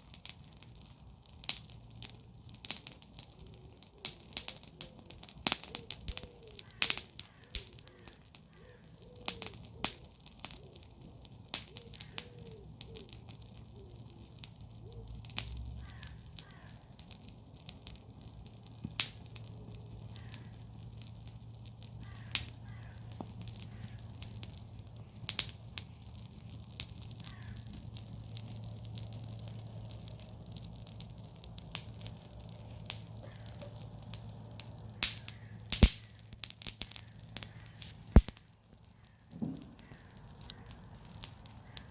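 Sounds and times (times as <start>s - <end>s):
bonfire crackling: 0.0s - 41.9s
burning wood popping: 0.0s - 41.9s
crows cawing: 5.7s - 10.9s, 11.7s - 13.2s, 15.8s - 17.0s, 19.5s - 20.8s, 21.9s - 24.4s, 27.1s - 27.8s, 33.2s - 33.9s, 34.8s - 36.3s, 36.9s - 41.9s.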